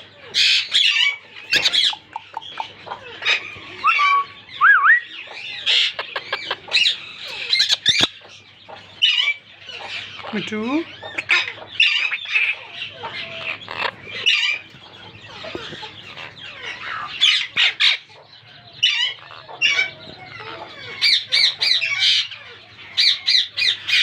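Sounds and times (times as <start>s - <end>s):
parrots chattering: 0.0s - 24.0s
parrots squawking harshly: 0.3s - 4.2s, 5.5s - 8.2s, 11.0s - 14.6s, 18.8s - 24.0s.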